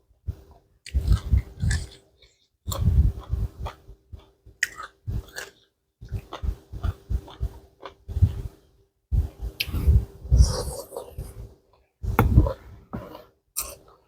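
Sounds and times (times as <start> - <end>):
person chewing food: 0.4 - 8.6.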